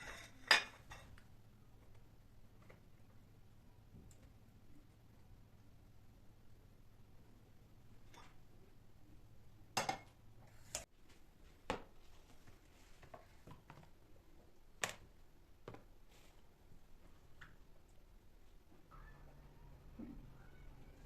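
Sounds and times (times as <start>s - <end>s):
dishes and utensils clinking: 0.0s - 1.2s, 9.8s - 10.2s.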